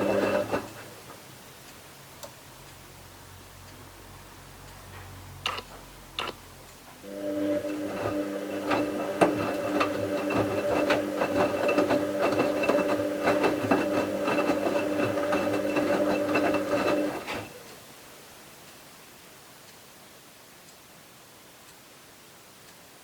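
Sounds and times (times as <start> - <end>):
washing machine motor hum: 0.0 - 1.0, 7.0 - 17.6
drum clicking and knocking: 7.6 - 17.5.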